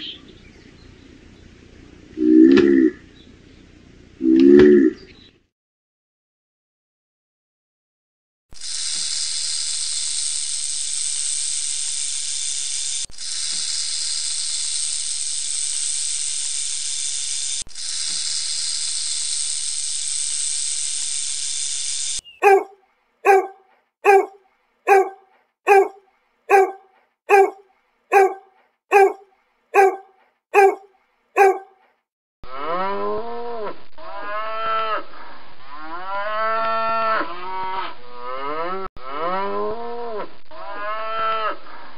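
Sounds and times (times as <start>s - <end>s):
puppy barking: 22.4s - 31.8s
cow mooing: 23.3s - 24.3s, 24.9s - 29.2s, 29.8s - 30.0s, 30.6s - 30.8s, 31.4s - 31.7s.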